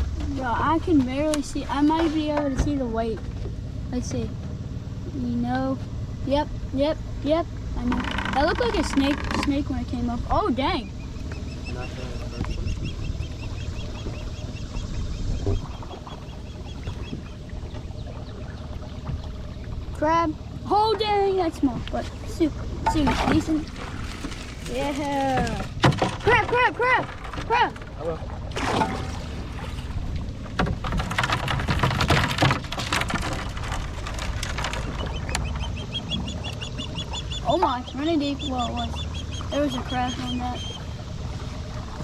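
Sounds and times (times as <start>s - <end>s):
low steady hum: 0.0s - 42.0s
low steady rumble: 0.0s - 42.0s
bird chirping: 10.6s - 19.8s, 34.7s - 41.0s.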